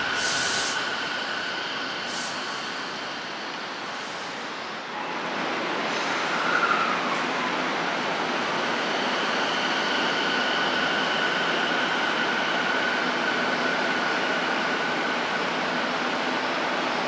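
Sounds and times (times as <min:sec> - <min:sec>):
high-pitched whine: 0:00.0 - 0:05.2
electric train rushing past: 0:00.0 - 0:17.0.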